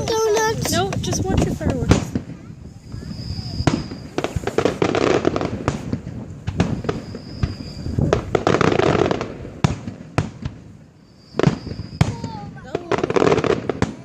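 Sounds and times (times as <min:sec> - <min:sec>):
firework shells bursting: 0:00.0 - 0:14.0
fireworks crackling: 0:00.0 - 0:14.0
high firework whistle: 0:02.2 - 0:05.8, 0:06.5 - 0:09.1, 0:11.0 - 0:14.0.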